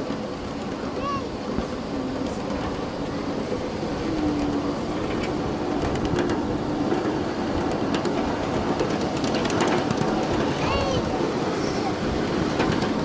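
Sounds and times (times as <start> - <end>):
clicks from train wheels: 0.0 - 13.0
small train rumbling on track: 0.0 - 13.0.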